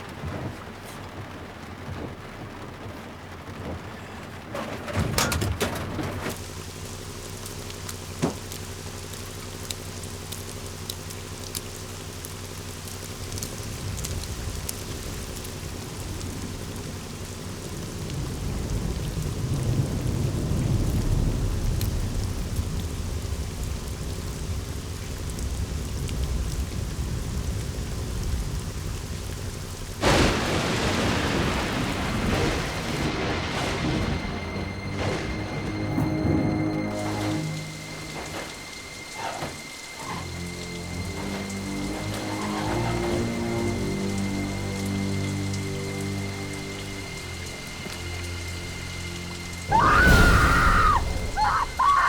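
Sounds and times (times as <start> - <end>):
steady rain: 0.0 - 52.0
rolling thunder: 13.6 - 52.0
loud thunder burst: 30.0 - 51.9.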